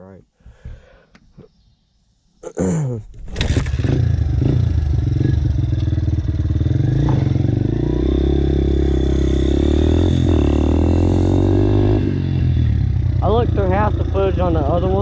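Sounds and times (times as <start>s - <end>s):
dirt bike engine starting: 3.1s - 15.0s.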